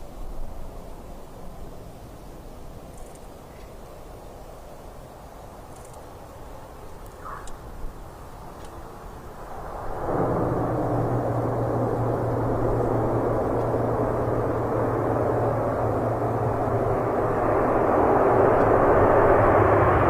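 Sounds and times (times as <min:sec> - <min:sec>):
low propeller hum: 0:00.0 - 0:20.0
turboprop engines droning: 0:04.0 - 0:20.0.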